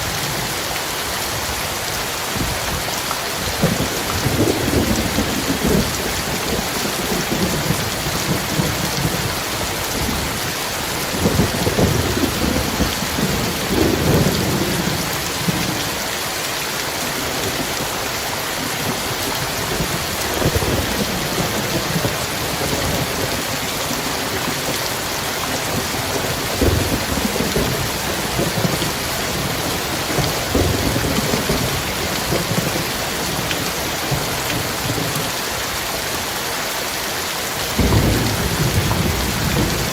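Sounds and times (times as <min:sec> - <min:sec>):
heavy rain falling: 0:00.0 - 0:39.9
thunder rolling: 0:03.6 - 0:15.6, 0:25.7 - 0:35.1, 0:37.8 - 0:39.9.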